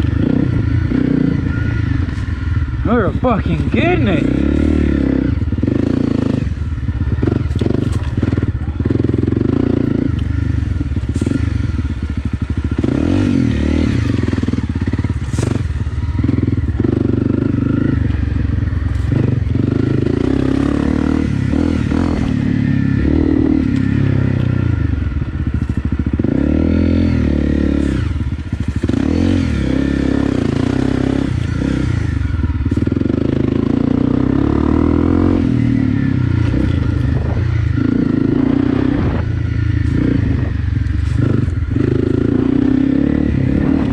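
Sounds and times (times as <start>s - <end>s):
motorcycle engine revving: 0.0s - 43.9s
knocks and clatter from bike: 7.1s - 8.6s, 10.9s - 12.1s, 15.0s - 20.7s.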